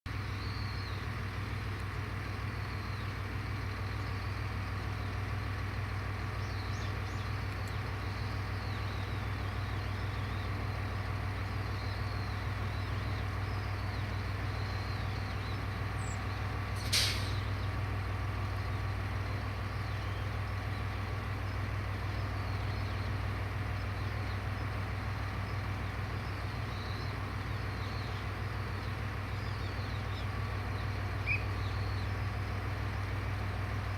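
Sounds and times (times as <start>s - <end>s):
diesel railcar idling: 0.1s - 33.9s
bird chirps: 0.3s - 1.2s, 6.2s - 33.1s
air hiss: 16.8s - 17.5s.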